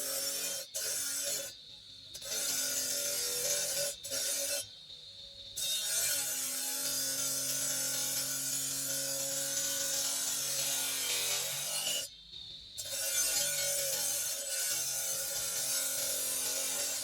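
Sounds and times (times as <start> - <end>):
power tool grinding marble: 0.0 - 1.5, 5.8 - 12.1, 12.9 - 17.0.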